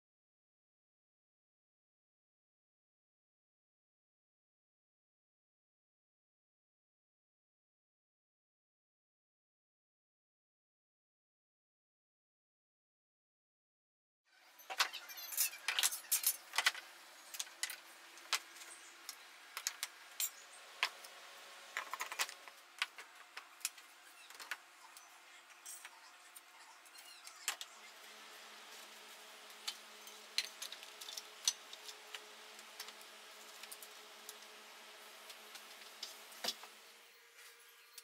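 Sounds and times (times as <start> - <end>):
faint steady hum: 14.4 - 38.0
tools clinking and knocking: 14.7 - 18.6, 19.6 - 21.0.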